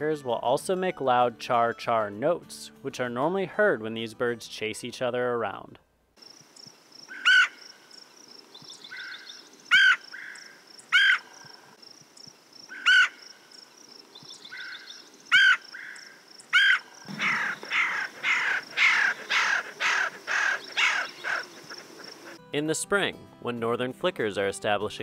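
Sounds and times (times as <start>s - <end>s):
harsh woodpecker chatter: 6.2s - 22.4s
woodpecker calls: 6.2s - 22.4s.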